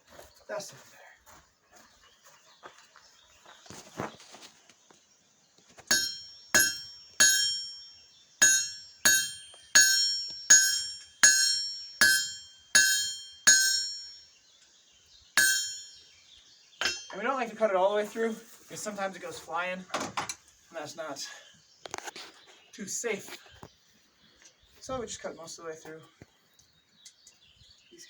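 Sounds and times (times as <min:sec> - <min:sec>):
hammer ringing on anvil: 0:05.9 - 0:14.3, 0:15.4 - 0:16.0, 0:16.8 - 0:17.2.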